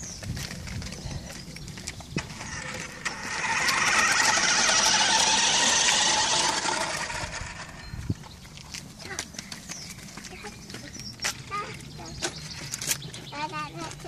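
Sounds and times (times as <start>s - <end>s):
toy truck electric motor: 2.2s - 7.8s.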